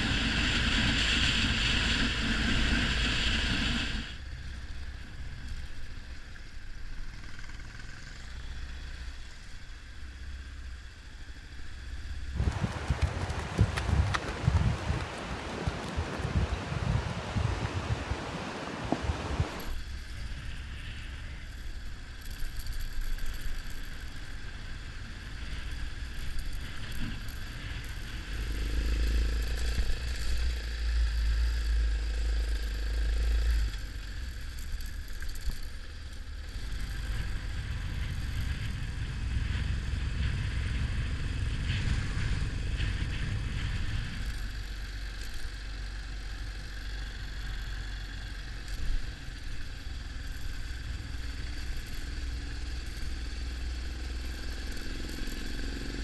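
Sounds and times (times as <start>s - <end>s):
motorcycle engine: 12.3s - 56.0s
wind buffeting microphone: 12.4s - 19.7s, 36.7s - 44.9s.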